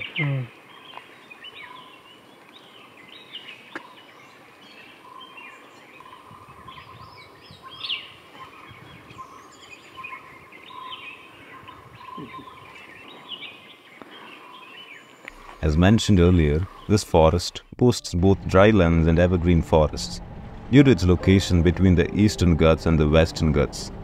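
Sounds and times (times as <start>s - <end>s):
forest birds chirping and calling: 0.0s - 17.8s.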